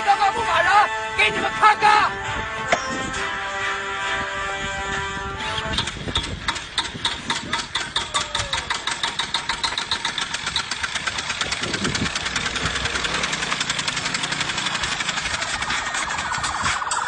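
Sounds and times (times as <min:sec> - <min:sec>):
motorcycle engine revving: 0:08.4 - 0:17.0.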